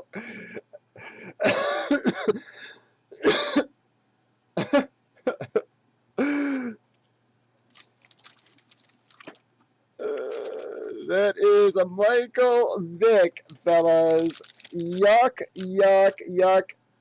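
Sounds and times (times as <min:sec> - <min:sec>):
man coughing: 0:01.3 - 0:02.6, 0:03.2 - 0:03.7, 0:04.6 - 0:06.8.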